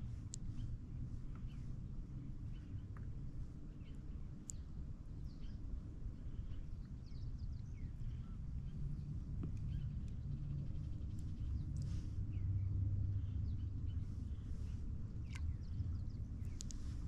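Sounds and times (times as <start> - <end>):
low rumble: 5.3 - 17.0
birds chirping: 6.3 - 17.0.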